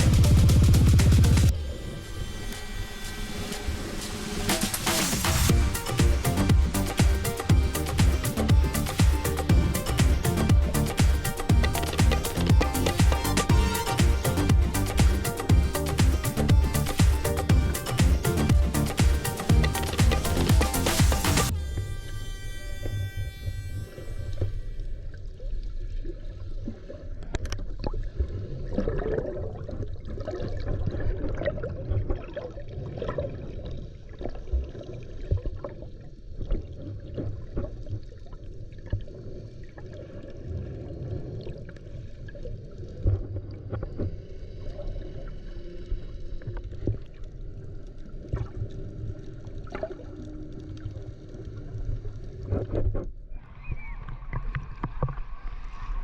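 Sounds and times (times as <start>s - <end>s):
underwater water wash and bubbling: 25.1s - 56.0s
small underwater clicks and knocks: 54.0s - 55.5s.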